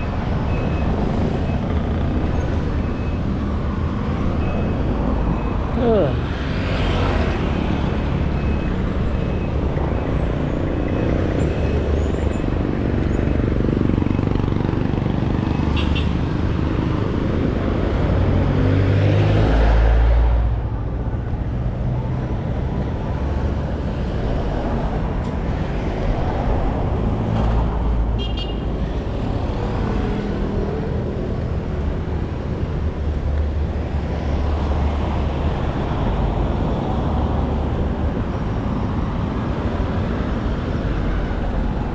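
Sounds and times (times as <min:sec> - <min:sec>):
passing vehicles rumble: 0:00.0 - 0:41.9.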